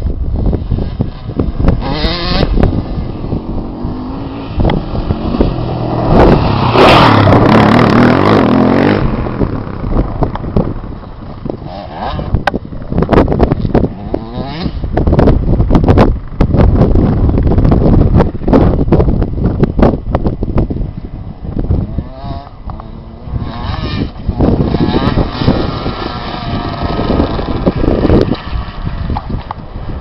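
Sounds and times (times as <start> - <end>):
motocross bike engine revving: 0.6 - 12.5, 13.3 - 15.2, 21.8 - 30.0.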